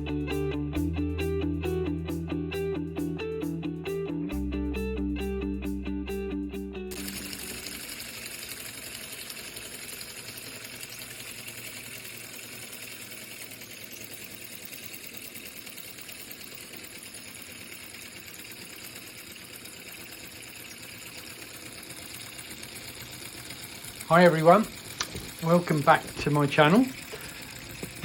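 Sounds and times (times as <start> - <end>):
small air engine clattering: 6.9 - 28.0.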